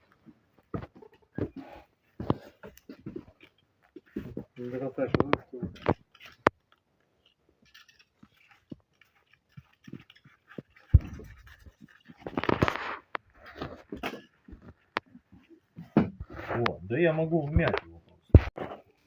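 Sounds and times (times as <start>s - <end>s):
rustling scrape: 7.7s - 16.7s.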